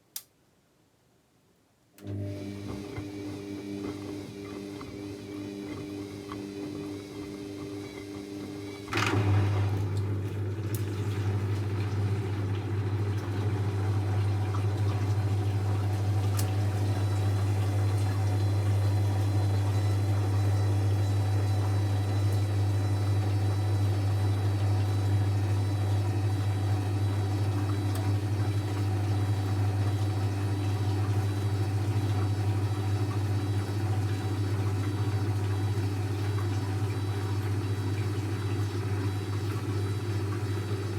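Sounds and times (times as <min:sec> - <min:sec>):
washing machine hum: 0:02.0 - 0:40.9
washing machine click: 0:14.8 - 0:18.4.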